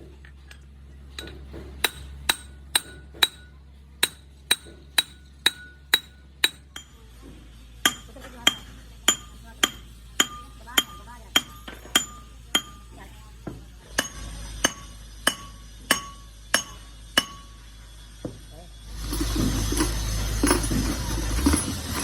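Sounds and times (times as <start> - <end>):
hammer striking metal: 1.2 - 7.0, 7.8 - 12.9, 13.9 - 17.6.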